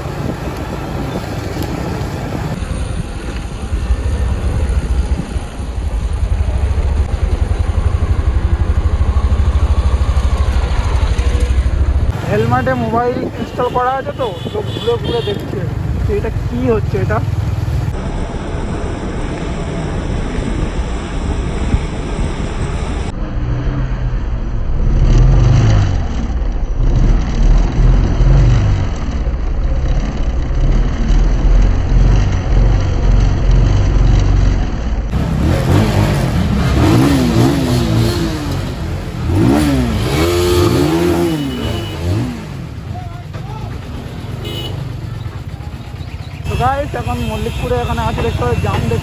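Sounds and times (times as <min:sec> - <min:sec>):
wind rumble on microphone: 0:00.0 - 0:35.6
motorcycle engine revving: 0:00.0 - 0:49.0.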